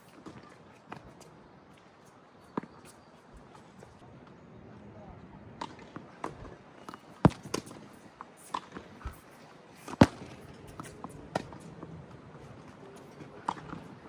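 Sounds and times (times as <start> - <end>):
tennis ball bouncing on court: 2.4 - 4.0, 5.6 - 11.7, 12.9 - 14.0
tennis ball struck by rackets: 5.6 - 11.7.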